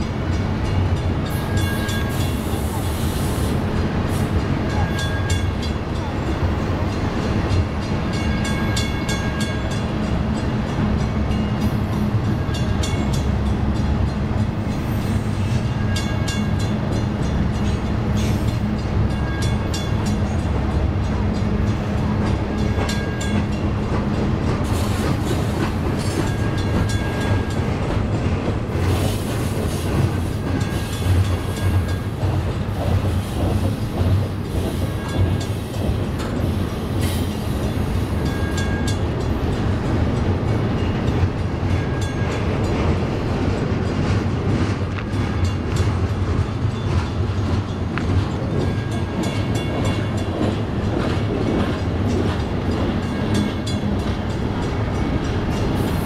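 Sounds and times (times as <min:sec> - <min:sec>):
train wheels rumbling on rail: 0:00.0 - 0:56.0
wheels clicking over rail joints: 0:14.0 - 0:56.0.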